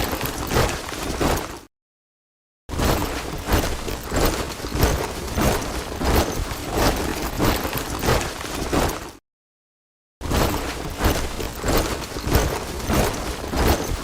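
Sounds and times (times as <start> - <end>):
soldiers marching in step: 2.9 - 9.2, 10.4 - 14.0.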